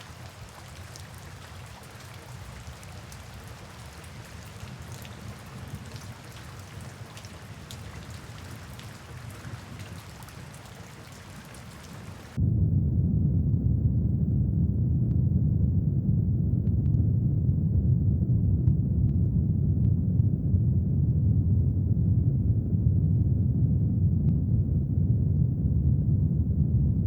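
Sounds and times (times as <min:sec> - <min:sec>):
brown noise rumbling hiss: 0:00.0 - 0:06.2
faint drip-like ticks: 0:00.0 - 0:12.4.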